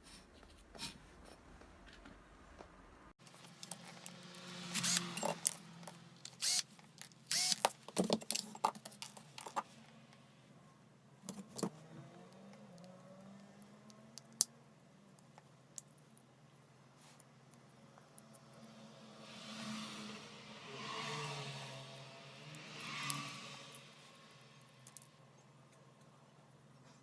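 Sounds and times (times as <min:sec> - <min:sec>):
small hard parts clicking and rattling: 0:03.2 - 0:09.7.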